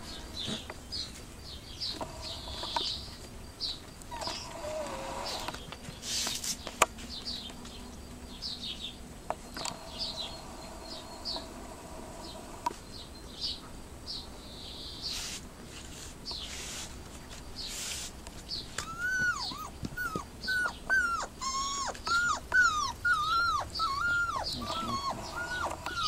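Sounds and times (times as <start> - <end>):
small bird chirping: 0.0 - 11.6, 17.5 - 26.0.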